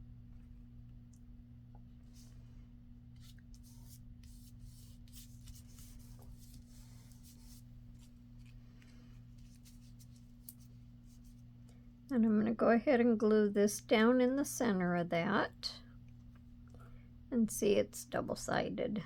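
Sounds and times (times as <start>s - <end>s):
steady low hum: 0.0s - 19.0s
paper rustling and rubbing: 3.2s - 11.4s.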